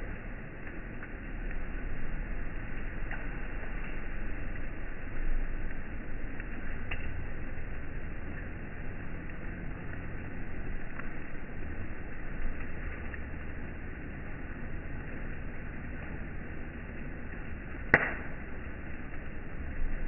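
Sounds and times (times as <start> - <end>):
campfire hissing: 0.0 - 20.0
faint fire crackles: 0.0 - 20.0
loud sharp pop from logs: 17.9 - 18.4.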